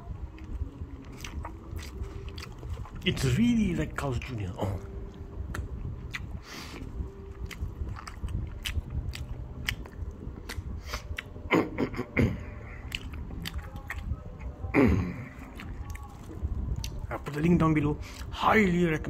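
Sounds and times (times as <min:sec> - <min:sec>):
person chewing: 0:00.3 - 0:03.1, 0:04.6 - 0:17.0.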